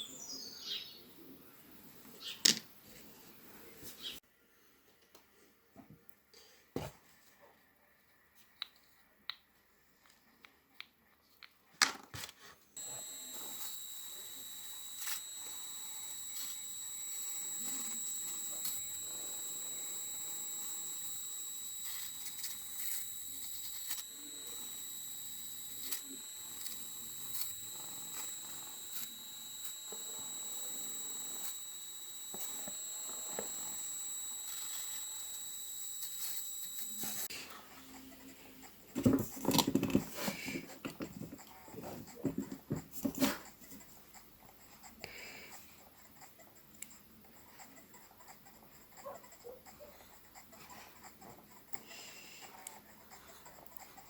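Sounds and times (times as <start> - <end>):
steady high-pitched whine: 12.8 - 37.3.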